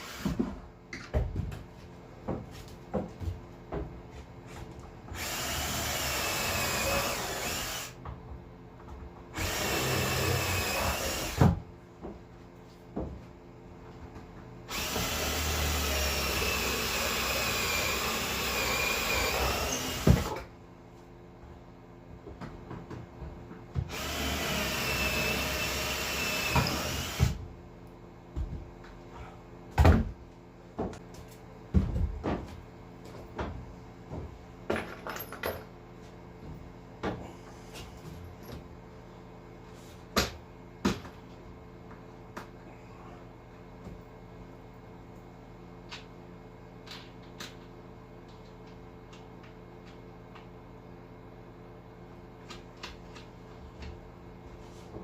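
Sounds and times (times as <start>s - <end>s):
power drill whining: 0.0s - 0.4s, 5.1s - 8.0s, 9.4s - 11.4s, 14.7s - 20.4s, 23.9s - 27.4s.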